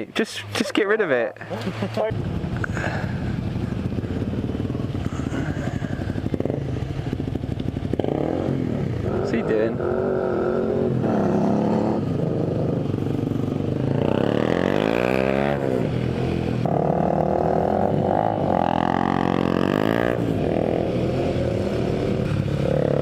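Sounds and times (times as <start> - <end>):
wind and road noise: 0.0 - 23.0
motorcycle engine running: 1.6 - 23.0.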